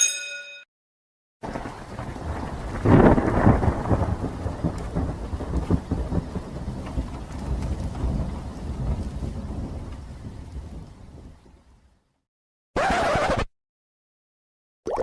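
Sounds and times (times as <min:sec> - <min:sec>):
thunder rumbling: 0:01.4 - 0:11.9
steady rain: 0:01.4 - 0:12.2.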